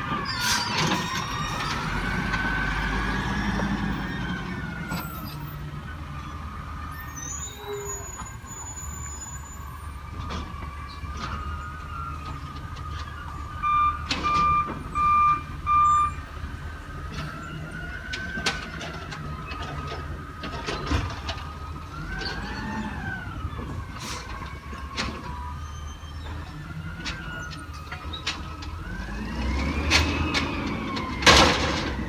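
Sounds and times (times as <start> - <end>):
garbage truck engine: 0.0 - 32.0
backup alarm beeps: 13.6 - 16.2
knocks and clanks: 26.2 - 32.0.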